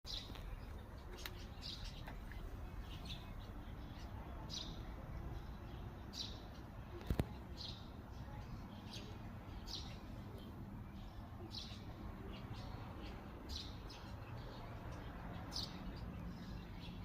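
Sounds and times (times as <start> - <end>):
bird chirping: 0.1 - 17.0.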